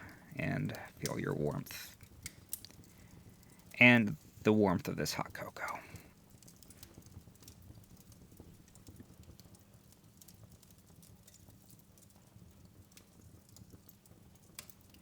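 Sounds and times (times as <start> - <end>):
log fire crackling and popping: 0.0 - 15.0.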